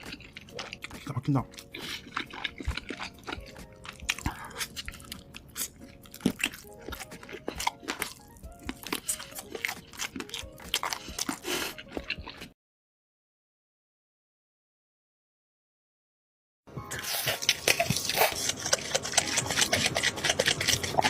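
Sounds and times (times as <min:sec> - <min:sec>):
crunchy chewing of fried chicken: 0:00.0 - 0:12.6, 0:16.9 - 0:21.0.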